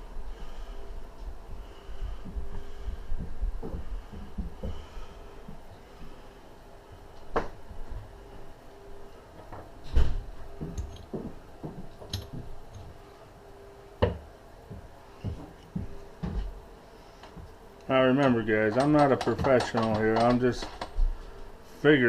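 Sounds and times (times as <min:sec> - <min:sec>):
faint steady hum: 0:00.0 - 0:22.0
metal parts clinking and knocking: 0:10.7 - 0:11.2, 0:11.9 - 0:12.9, 0:18.2 - 0:21.0.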